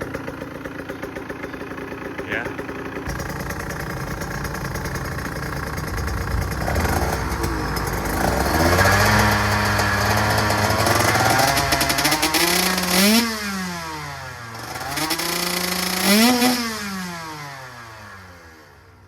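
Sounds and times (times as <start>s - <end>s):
two-stroke motorcycle engine revving: 0.0s - 19.0s.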